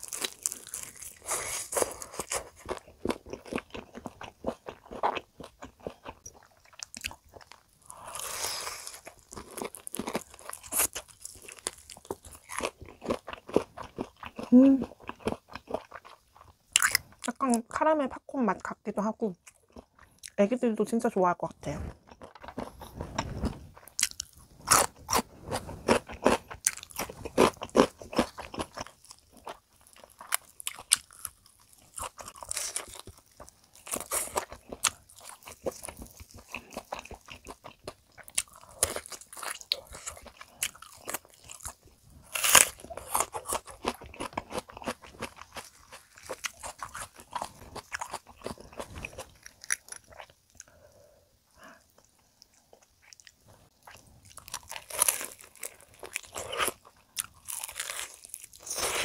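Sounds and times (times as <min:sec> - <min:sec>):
fried chicken crunching: 0:00.0 - 0:17.2, 0:22.1 - 0:50.7, 0:52.8 - 0:59.0.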